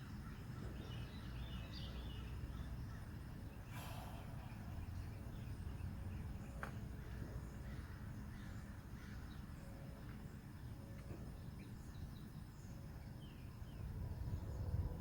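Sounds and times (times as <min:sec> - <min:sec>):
faint bird chirps: 0:00.2 - 0:09.8.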